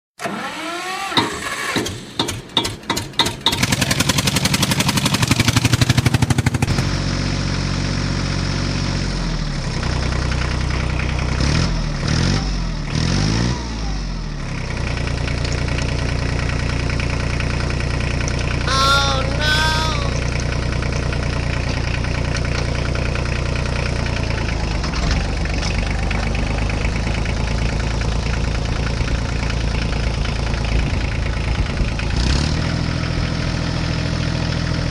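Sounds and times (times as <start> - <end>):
tractor engine idling: 2.2 - 6.6, 15.1 - 31.7.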